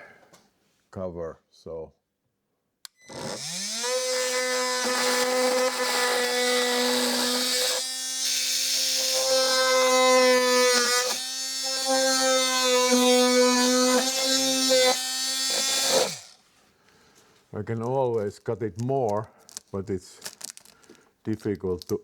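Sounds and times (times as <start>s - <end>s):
blade cutting plastic: 3.0s - 16.4s
multi-tool motor buzzing: 3.0s - 16.4s.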